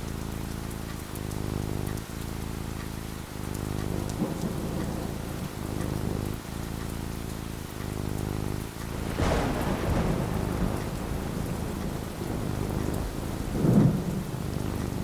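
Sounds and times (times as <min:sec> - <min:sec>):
rain falling: 0:00.0 - 0:15.0
thunder cracking and rumbling: 0:03.5 - 0:06.5, 0:07.6 - 0:15.0.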